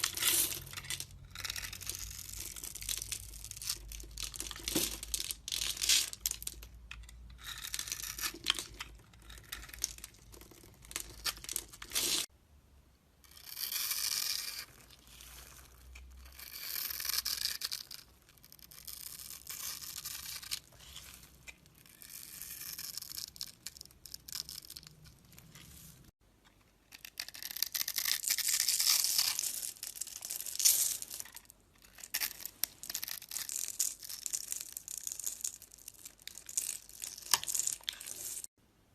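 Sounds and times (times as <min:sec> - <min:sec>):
crumbly soap crackling: 0:00.0 - 0:12.3
knife scraping soap: 0:00.0 - 0:12.3, 0:13.3 - 0:25.9, 0:26.9 - 0:35.0.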